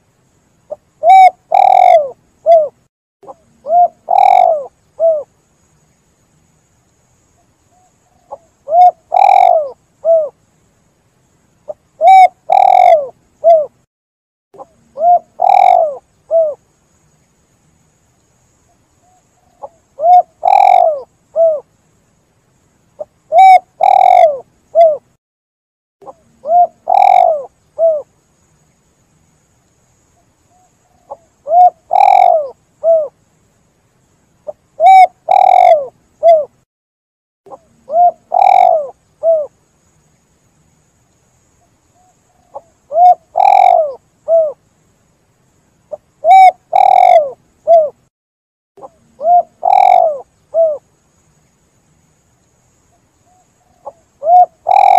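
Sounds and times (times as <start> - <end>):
dove cooing: 1.0 - 5.3, 7.8 - 10.4, 11.7 - 13.8, 14.6 - 16.6, 19.0 - 21.7, 23.0 - 25.1, 26.0 - 28.1, 30.5 - 33.2, 34.5 - 36.6, 37.5 - 39.5, 42.0 - 44.6, 45.9 - 48.0, 48.8 - 50.8, 53.3 - 54.9.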